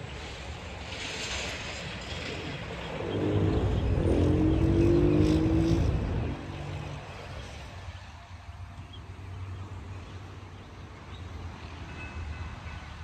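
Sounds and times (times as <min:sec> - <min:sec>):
steady low rumble: 0:01.5 - 0:07.6
vehicle engine accelerating: 0:02.1 - 0:07.6.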